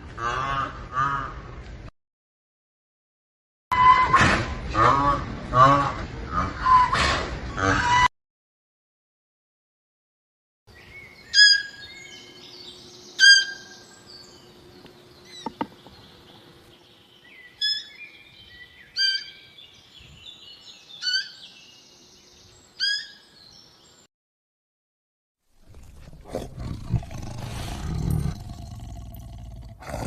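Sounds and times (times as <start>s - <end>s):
chorus of chirping birds: 10.8s - 24.1s.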